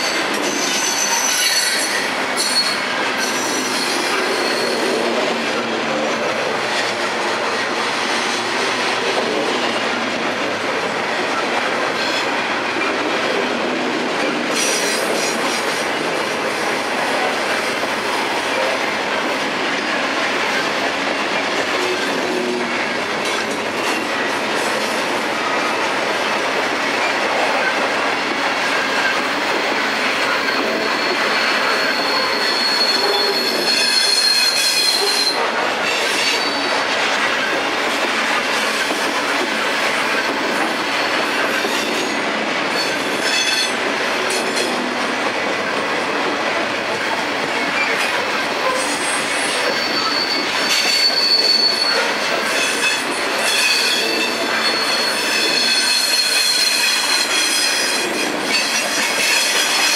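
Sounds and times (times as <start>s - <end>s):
high-pitched wheel squeal: 0.0s - 5.0s, 30.3s - 36.7s, 48.7s - 59.7s
train wheels rumbling on rail: 0.0s - 59.9s.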